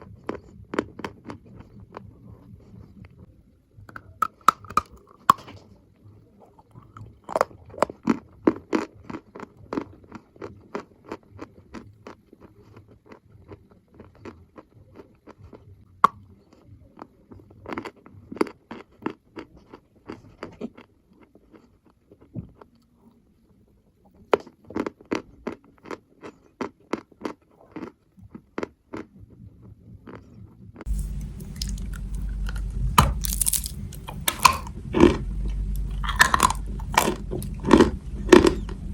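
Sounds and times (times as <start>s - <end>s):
chalk crunching when chewed: 3.9s - 5.6s, 6.4s - 22.9s, 24.2s - 29.2s, 30.1s - 38.9s
low rumble: 30.9s - 38.9s.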